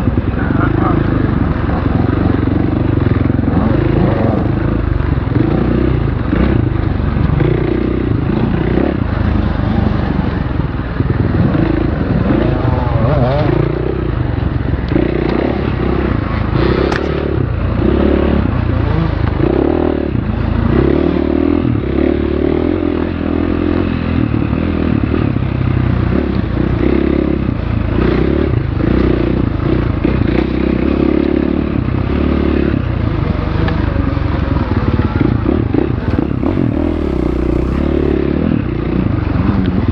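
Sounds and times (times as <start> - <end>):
dirt bike engine revving: 1.7 - 6.0, 36.0 - 38.2.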